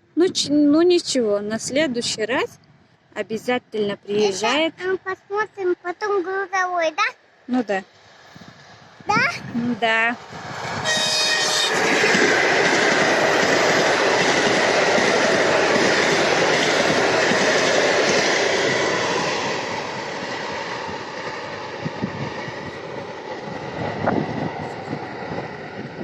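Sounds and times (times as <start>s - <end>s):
high train whine: 0.0s - 26.0s
train wheels rumbling on rails: 7.9s - 26.0s.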